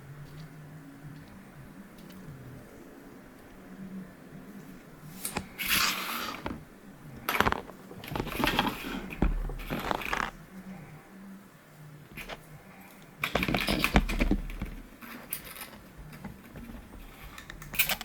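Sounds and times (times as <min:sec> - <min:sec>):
plastic scraping: 0:04.5 - 0:10.9, 0:12.1 - 0:12.5, 0:13.2 - 0:18.0
plastic parts clicking and knocking: 0:05.2 - 0:10.4, 0:12.1 - 0:18.0.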